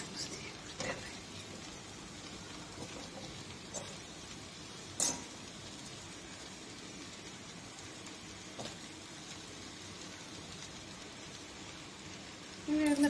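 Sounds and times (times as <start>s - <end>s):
noodles sizzling in a wok: 0.0s - 13.0s
spoon clinking on a pan: 5.0s - 5.4s.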